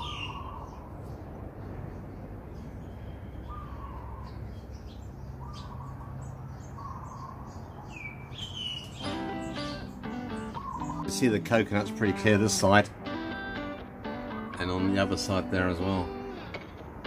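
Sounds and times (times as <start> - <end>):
higher curving bird chirps: 0.0 - 11.4, 14.1 - 15.1.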